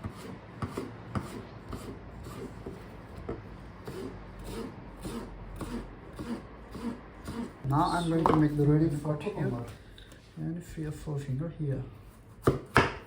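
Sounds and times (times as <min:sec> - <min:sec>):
food rubbing and scraping on wood: 0:00.0 - 0:10.3.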